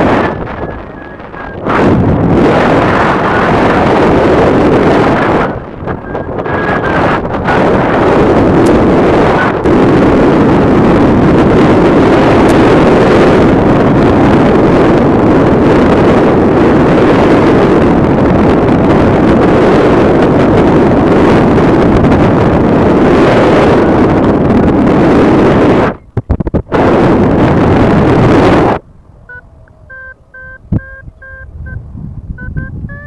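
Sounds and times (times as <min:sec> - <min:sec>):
strong wind over microphone: 0:00.0 - 0:33.0.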